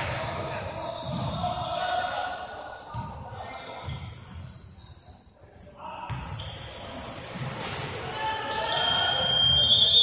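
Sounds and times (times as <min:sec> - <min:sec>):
voices in a hall: 0:00.0 - 0:10.0
shoe squeaks: 0:02.7 - 0:07.8.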